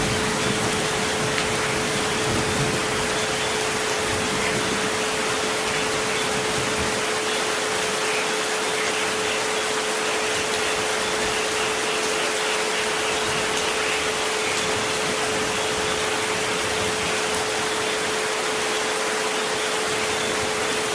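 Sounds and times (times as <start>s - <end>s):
rain hiss: 0.0s - 20.9s.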